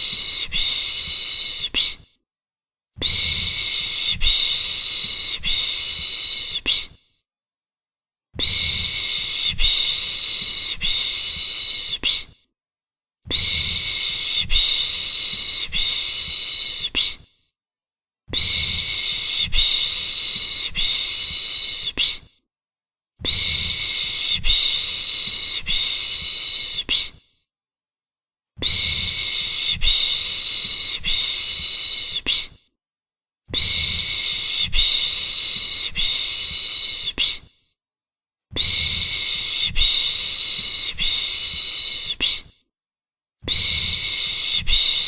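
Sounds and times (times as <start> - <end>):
person shushing rhythmically: 0.0 - 2.1, 8.4 - 12.4, 13.3 - 17.3, 18.3 - 22.3, 23.2 - 27.2, 28.6 - 32.6, 33.5 - 37.5, 38.5 - 42.5, 43.5 - 45.0.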